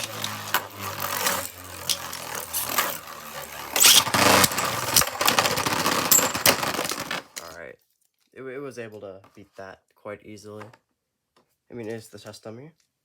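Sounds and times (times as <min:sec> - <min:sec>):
spinning tops clacking: 0:00.0 - 0:07.4
spinning tops whirring: 0:00.0 - 0:07.5.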